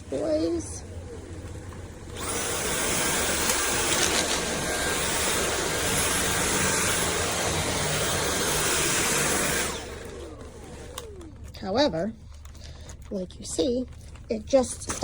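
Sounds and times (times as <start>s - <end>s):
vacuum cleaner running: 0.0s - 12.2s
small clicks: 10.4s - 11.6s.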